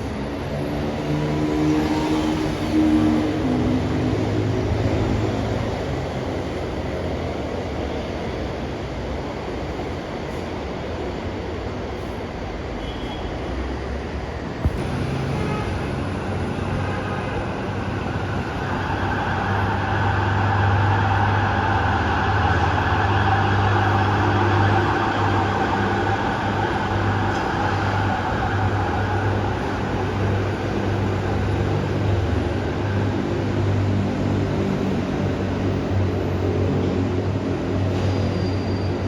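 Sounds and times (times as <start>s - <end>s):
monorail train motor whine: 14.6s - 33.2s.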